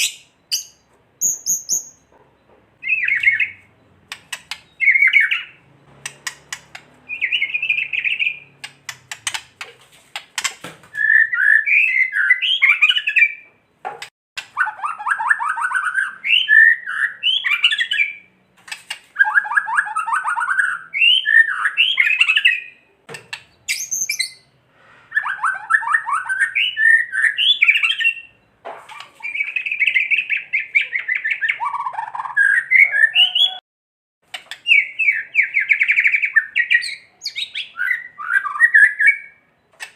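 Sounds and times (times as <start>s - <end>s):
sharp clicks: 4.0s - 4.8s, 6.0s - 7.0s, 8.6s - 10.7s.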